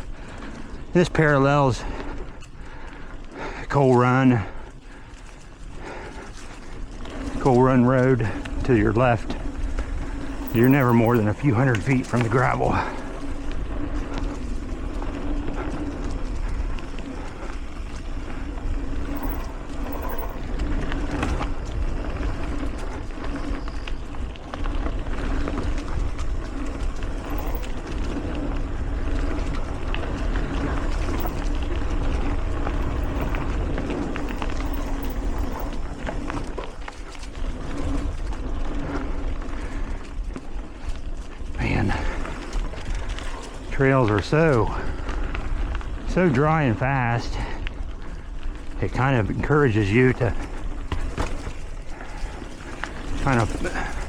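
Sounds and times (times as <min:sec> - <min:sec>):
bike rattles and clicks: 0:00.0 - 0:54.0
tyres rumbling on dirt: 0:03.7 - 0:54.0.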